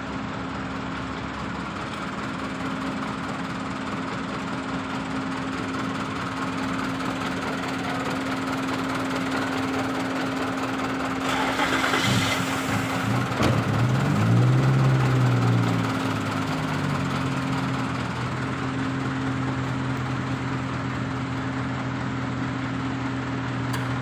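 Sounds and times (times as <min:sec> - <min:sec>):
car engine running: 0:00.7 - 0:23.5
short hiss: 0:11.2 - 0:13.0.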